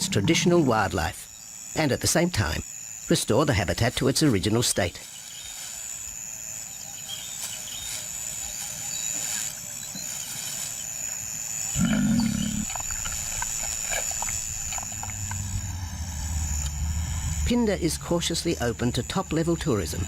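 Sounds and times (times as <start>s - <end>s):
high-pitched insect buzz: 0.0s - 20.0s
lion roaring: 11.7s - 12.9s.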